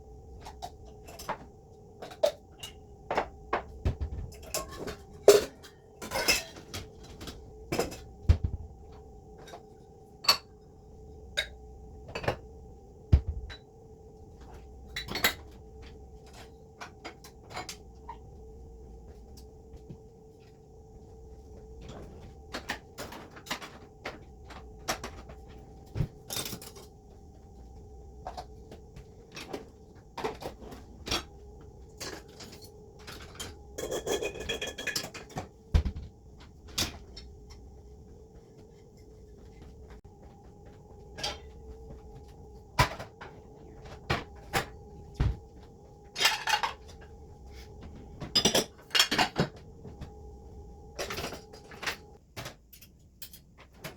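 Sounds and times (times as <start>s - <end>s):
steady hum: 0.0s - 52.2s
dishes and pots clattering: 2.1s - 6.8s, 33.2s - 36.0s, 46.2s - 47.0s, 48.2s - 49.6s.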